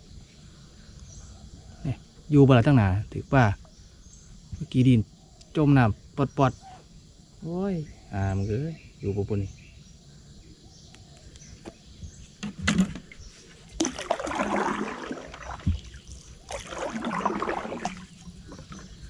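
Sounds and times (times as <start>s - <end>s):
water splashing and sloshing: 12.4s - 19.0s.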